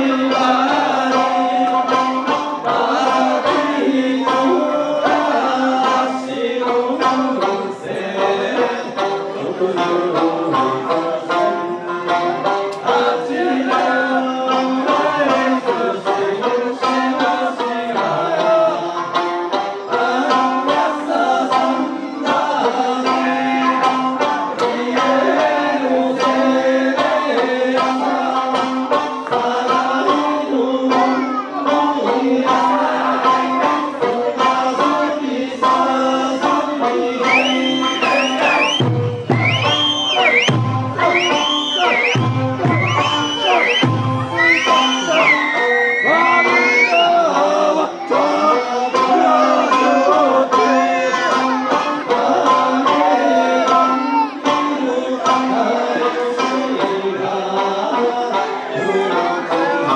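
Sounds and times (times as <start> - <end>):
folk song singing: 0.0 - 59.9
plucked lute accompaniment: 0.0 - 59.9
drum strikes: 37.9 - 45.3.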